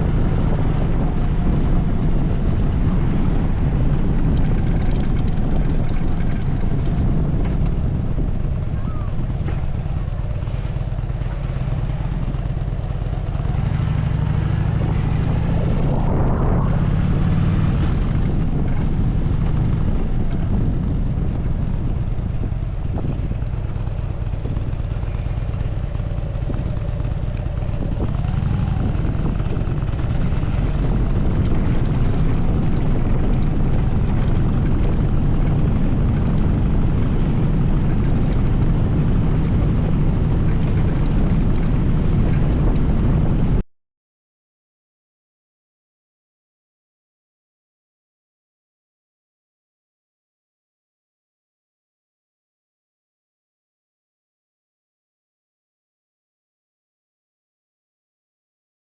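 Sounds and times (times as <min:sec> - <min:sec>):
motorcycle engine running: 0:00.0 - 0:43.6.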